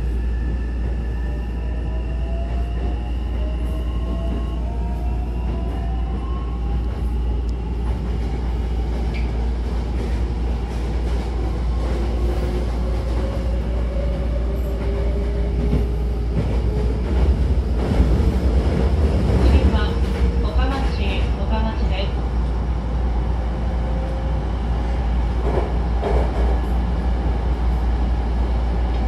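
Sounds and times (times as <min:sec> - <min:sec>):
train wheels rumbling: 0:00.0 - 0:29.0.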